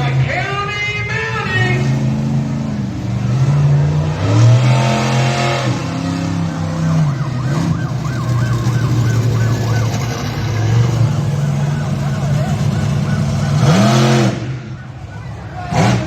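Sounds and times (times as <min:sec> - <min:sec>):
monster truck engine revving: 0:00.0 - 0:16.0
warbling siren-like wail: 0:05.4 - 0:16.0.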